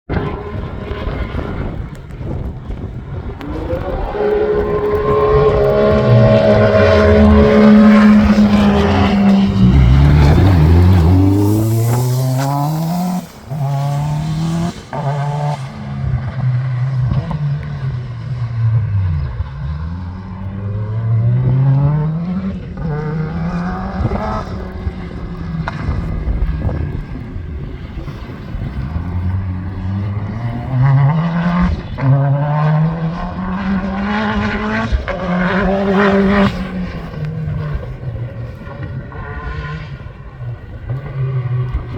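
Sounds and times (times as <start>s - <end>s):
car engine accelerating hard: 0.1s - 41.9s.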